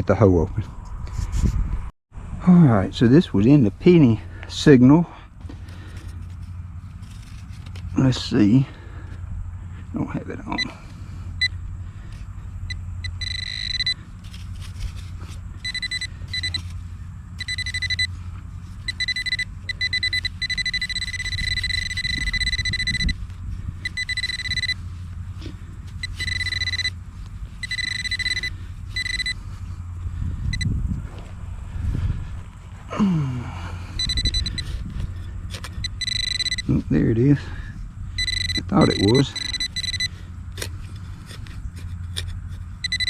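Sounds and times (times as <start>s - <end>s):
metal detector high alert tone: 10.4s - 11.6s, 12.6s - 18.2s, 18.8s - 29.8s, 33.1s - 40.7s, 42.1s - 43.0s
low rumble: 10.8s - 38.7s.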